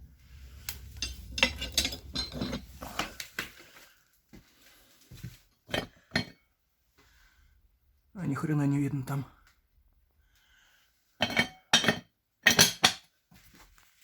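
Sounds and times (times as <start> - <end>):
metallic clinking: 0.7 - 3.0.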